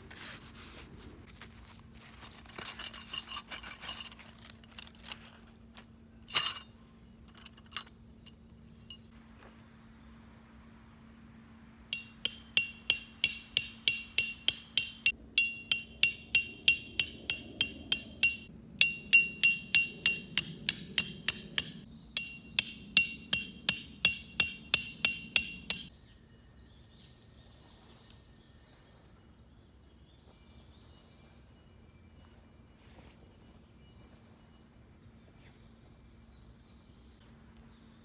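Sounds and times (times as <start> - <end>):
hammer striking metal tent pegs: 12.0 - 25.9.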